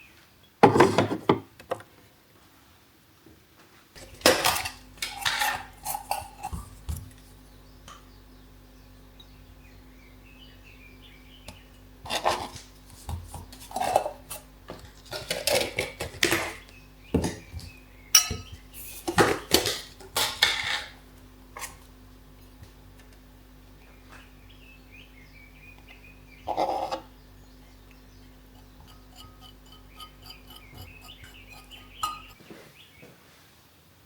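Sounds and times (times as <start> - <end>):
dishes and cutlery clattering: 18.2 - 18.6, 28.5 - 32.4.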